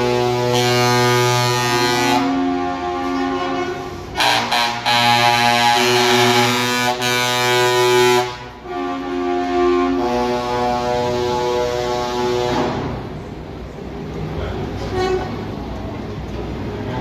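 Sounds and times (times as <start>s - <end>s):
truck air horns blasting chord: 0.0s - 13.1s.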